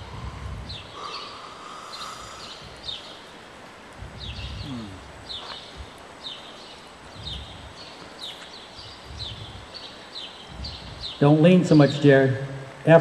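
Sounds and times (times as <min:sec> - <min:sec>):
small birds chirping: 0:00.0 - 0:13.0
hooves thudding on soft dirt: 0:03.9 - 0:11.4.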